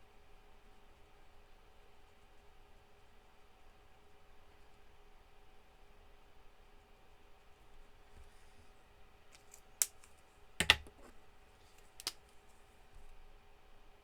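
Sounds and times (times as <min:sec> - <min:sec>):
faint steady hum: 0:00.0 - 0:14.0
craft supplies clicking on desk: 0:09.4 - 0:11.1.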